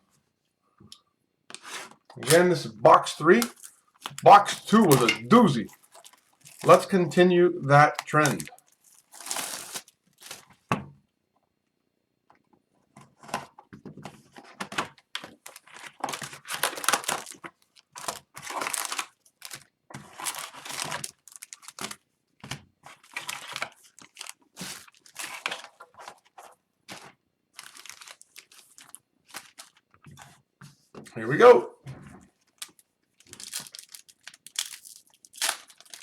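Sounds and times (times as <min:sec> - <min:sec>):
card pack wrappers tearing: 0:02.2 - 0:10.5, 0:15.2 - 0:22.0, 0:23.0 - 0:26.3, 0:26.9 - 0:29.8, 0:32.6 - 0:36.0.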